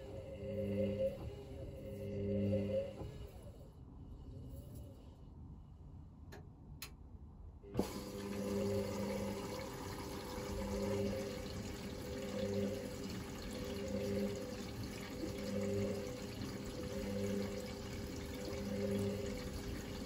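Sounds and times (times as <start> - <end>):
washing machine motor hum: 0.0 - 3.8, 7.6 - 20.0
water sloshing in washing machine: 7.8 - 20.0.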